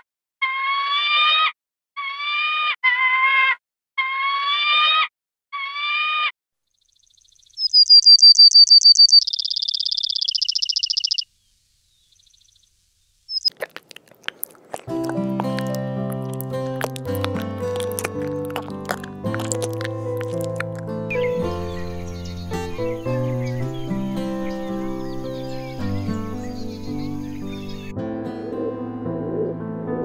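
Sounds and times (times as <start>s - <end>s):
sparrow trilling: 6.9s - 12.6s, 13.3s - 27.9s
kestrel calling: 7.2s - 11.3s, 13.3s - 27.9s.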